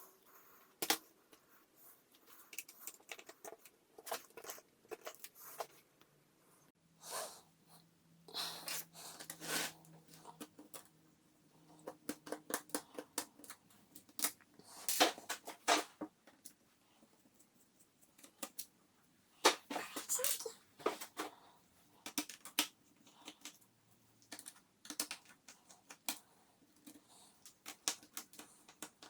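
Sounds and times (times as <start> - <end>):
plastic parts clicking: 24.2 - 26.2, 26.8 - 29.0.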